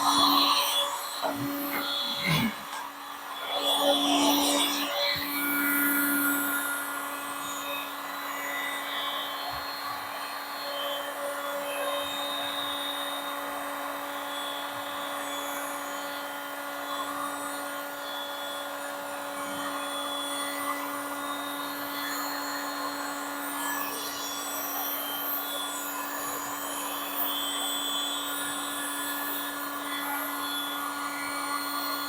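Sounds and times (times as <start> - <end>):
electric blower motor humming: 0.0 - 14.2.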